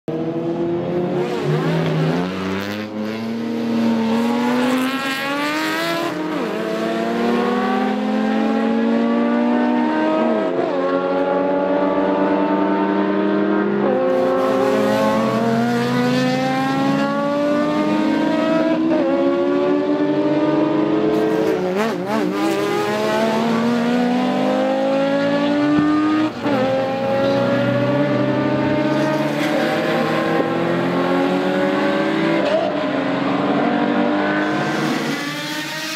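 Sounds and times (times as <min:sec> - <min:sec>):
car engine revving under load: 0:12.2 - 0:35.9.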